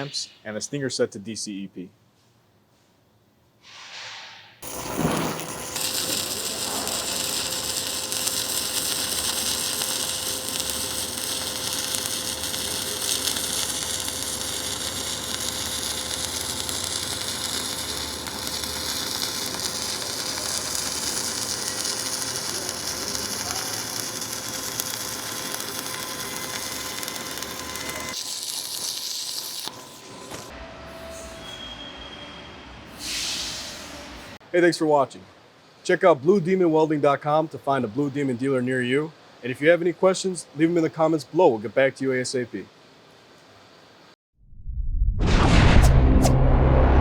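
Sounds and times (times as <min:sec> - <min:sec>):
welding arc crackling: 0:04.6 - 0:30.5.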